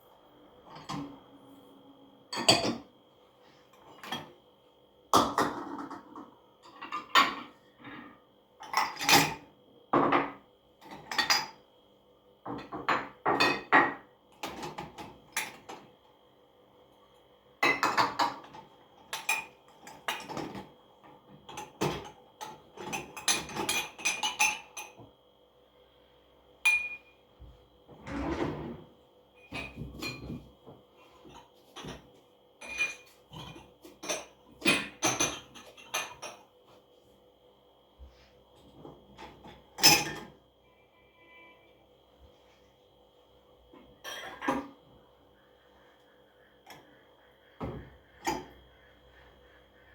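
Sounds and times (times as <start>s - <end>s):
dishes and cutlery clinking: 2.3s - 2.9s, 21.5s - 25.0s, 26.7s - 27.2s, 29.4s - 30.5s, 31.2s - 36.5s, 39.2s - 40.4s.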